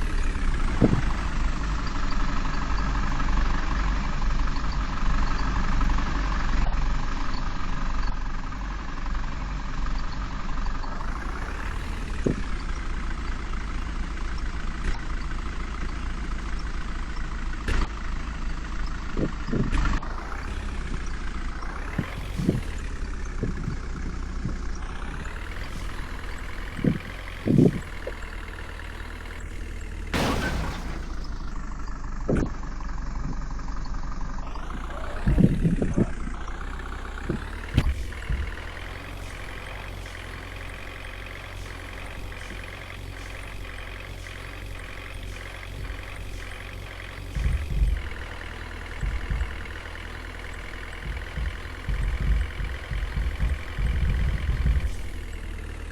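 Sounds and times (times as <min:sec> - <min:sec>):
low thumps: 0:00.0 - 0:03.1, 0:19.1 - 0:28.4, 0:30.2 - 0:33.4, 0:34.5 - 0:44.1, 0:45.0 - 0:55.6
truck engine running: 0:00.0 - 0:55.9
sharp burst: 0:30.2 - 0:31.6.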